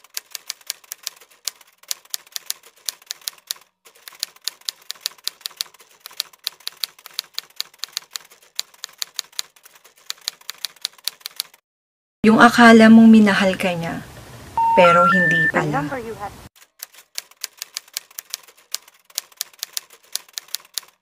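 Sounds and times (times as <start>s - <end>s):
typewriter keys clacking: 0.0s - 11.6s, 16.6s - 21.0s.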